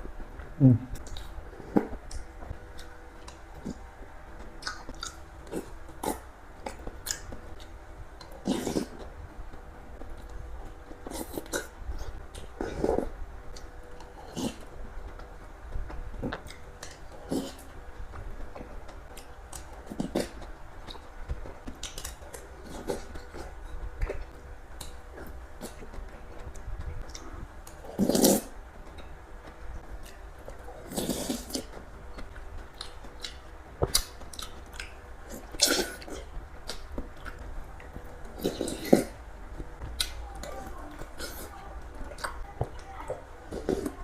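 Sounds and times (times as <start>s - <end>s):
chewing and slurping: 18.4s - 29.1s, 30.0s - 39.2s.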